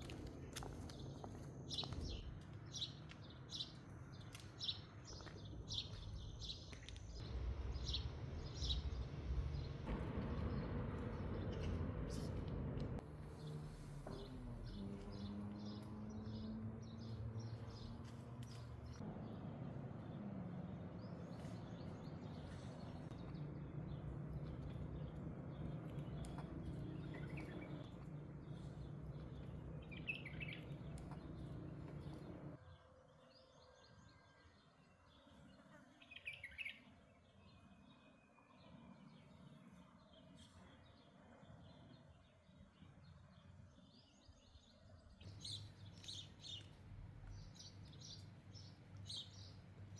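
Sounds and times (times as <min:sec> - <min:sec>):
birds chirping: 0:00.0 - 0:49.9
low background rumble: 0:05.6 - 0:15.8, 0:18.8 - 0:32.6.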